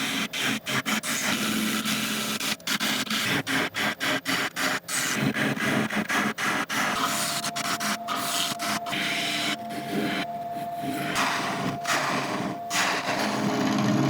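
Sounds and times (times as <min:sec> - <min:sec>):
steady whine: 0:06.4 - 0:14.0.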